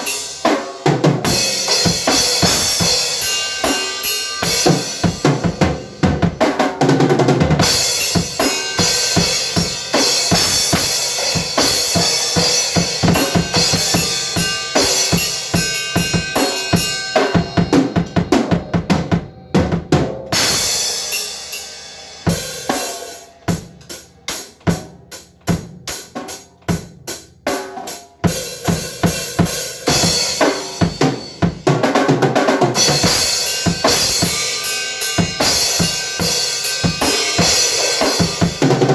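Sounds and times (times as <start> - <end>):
drum kit playing: 0.0 - 38.9.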